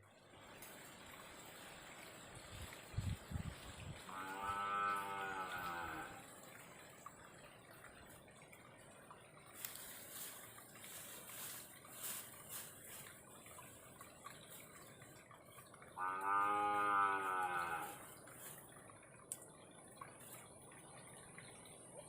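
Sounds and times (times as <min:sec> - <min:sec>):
cow mooing: 0:04.1 - 0:06.2, 0:16.0 - 0:18.0.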